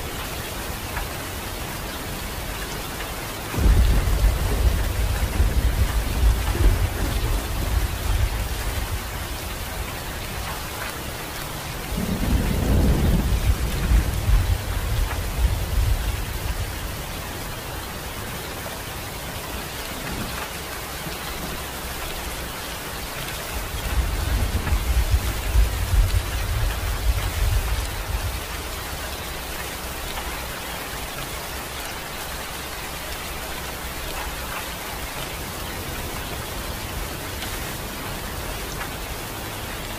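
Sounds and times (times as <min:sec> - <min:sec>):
steady rain falling: 0:00.0 - 0:39.9
low thunder rumbling: 0:03.5 - 0:10.7, 0:11.6 - 0:18.4, 0:23.1 - 0:30.6.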